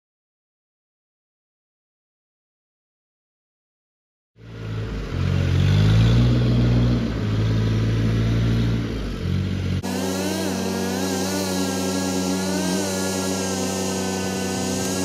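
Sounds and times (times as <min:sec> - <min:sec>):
vehicle engine revving: 0:04.4 - 0:15.0.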